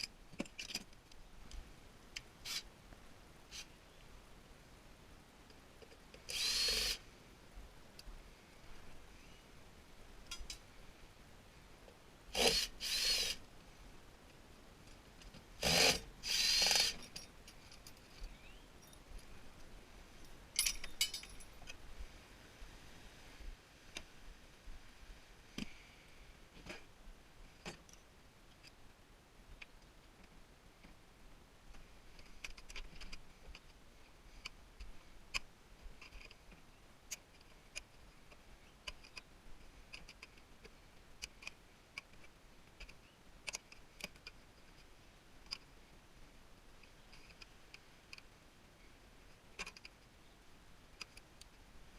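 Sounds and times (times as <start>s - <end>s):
power drill bursts: 6.3s - 7.0s, 12.3s - 13.4s, 15.6s - 17.0s.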